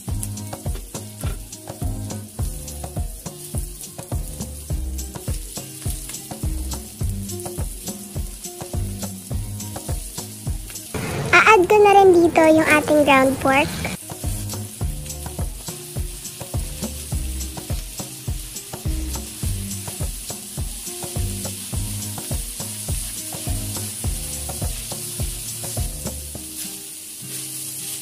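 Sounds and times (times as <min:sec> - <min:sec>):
meat sizzling in oil: 0:00.0 - 0:28.0
spatula scraping a wok: 0:13.9 - 0:28.0.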